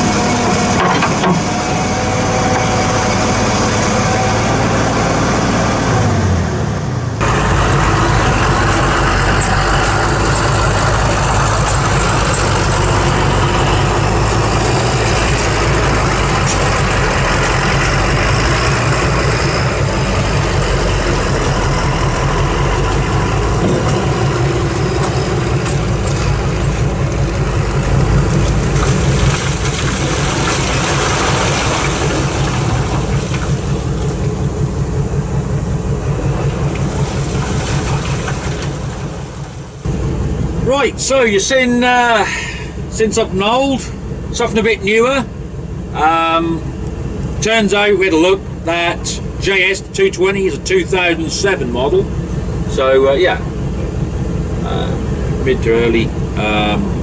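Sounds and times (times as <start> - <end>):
diesel excavator engine running: 0.0 - 57.0.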